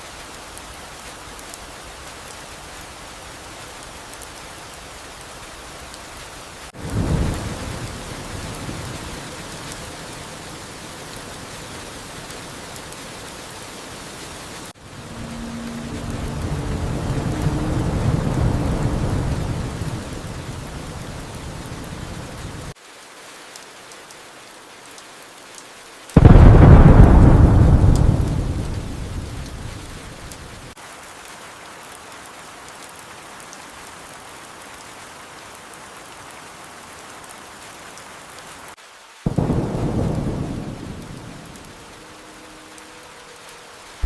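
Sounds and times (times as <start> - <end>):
steady rain: 0.0 - 44.0
thunder claps rumbling: 6.8 - 9.5, 14.8 - 22.7, 26.2 - 30.7, 39.3 - 42.0.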